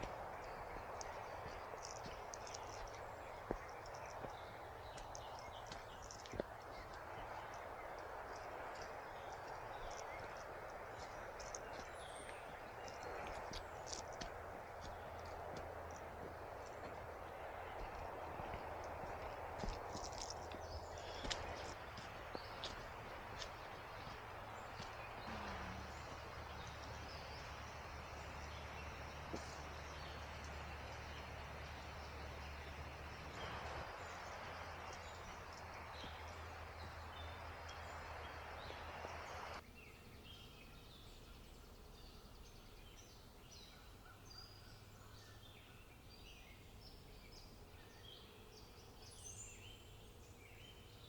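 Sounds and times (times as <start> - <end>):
steady rushing hiss: 0.0 - 39.6.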